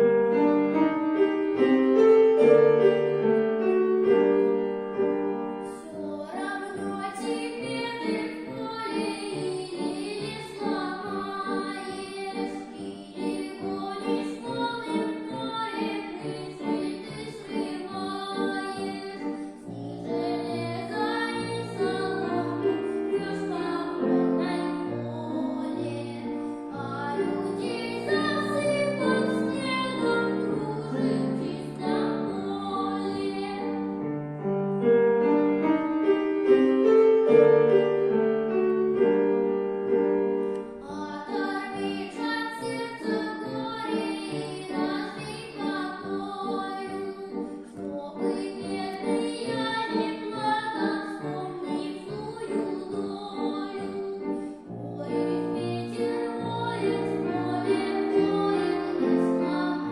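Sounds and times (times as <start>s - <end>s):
piano accompaniment: 0.0s - 59.9s
boy singing: 5.7s - 33.8s, 40.8s - 59.9s.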